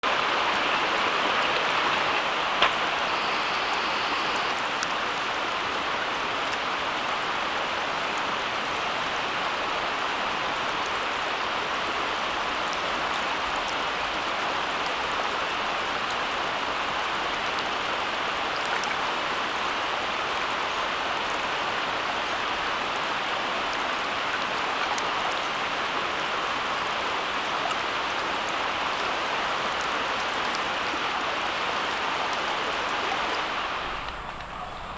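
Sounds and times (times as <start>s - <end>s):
rushing water: 0.0s - 34.9s
sharp click: 2.6s - 4.0s.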